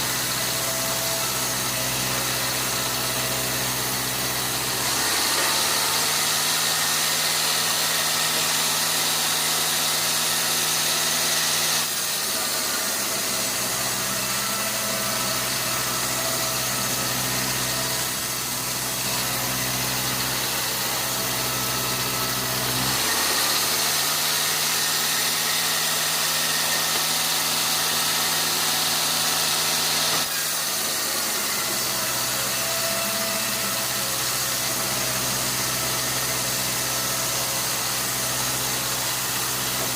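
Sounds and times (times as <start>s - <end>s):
sawmill machinery droning: 0.0s - 39.9s.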